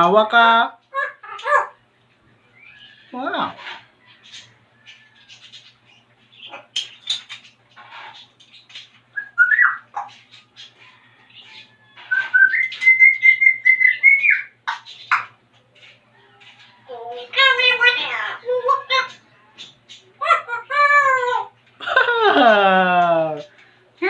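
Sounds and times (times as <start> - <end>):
parrot chirps and clicks: 0.9 - 1.7, 14.1 - 16.0
parrot whistling: 9.2 - 9.9, 12.0 - 14.5.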